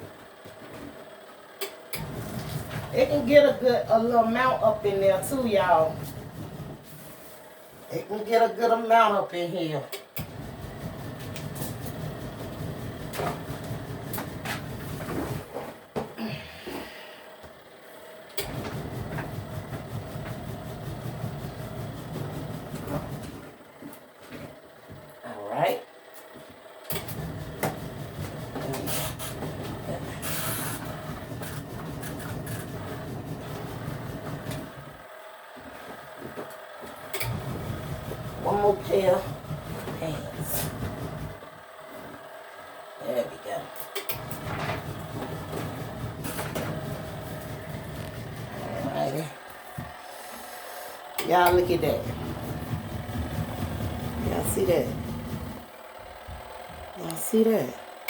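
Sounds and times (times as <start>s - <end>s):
washing machine motor humming: 0.0s - 58.0s
water and clothes churning: 2.0s - 7.4s, 10.3s - 15.6s, 18.4s - 23.6s, 27.0s - 35.0s, 37.1s - 41.4s, 44.1s - 57.1s.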